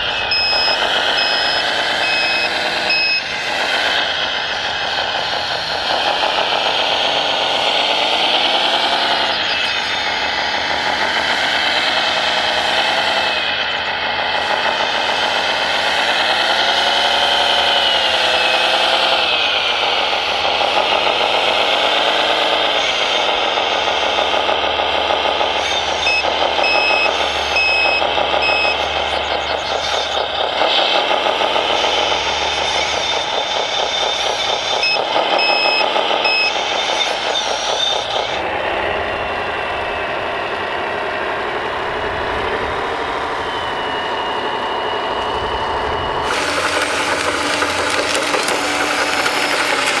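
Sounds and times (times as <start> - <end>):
reversing beeper: 0.0 - 4.7, 25.5 - 30.4
radio-controlled model motors whining: 0.0 - 39.9, 43.2 - 50.0.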